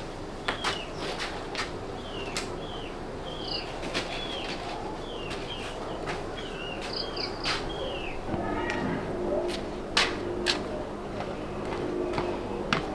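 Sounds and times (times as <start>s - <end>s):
bird chirping: 2.0s - 8.8s.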